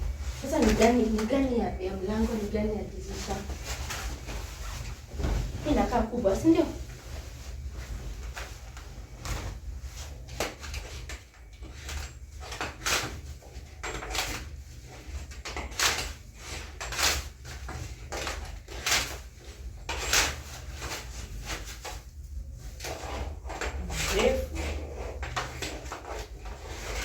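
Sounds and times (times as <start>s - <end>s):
steady low hum: 0.0s - 10.6s
curtain fabric rustling: 0.0s - 27.0s.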